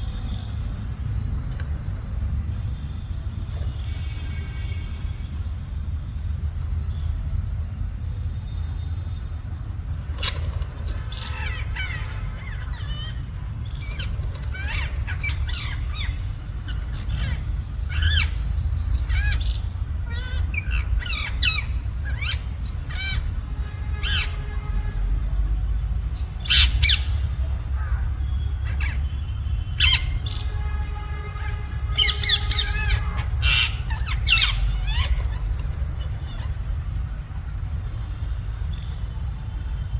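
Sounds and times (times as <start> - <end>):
parakeets squawking: 10.0 - 25.0, 26.0 - 37.2.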